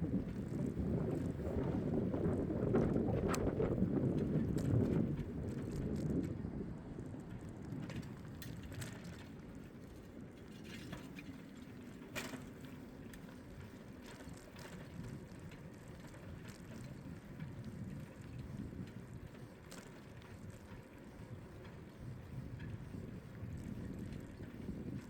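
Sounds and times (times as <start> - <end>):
wind on microphone: 0.0 - 9.2, 20.5 - 25.0
bicycle tyres rumbling: 0.0 - 25.0.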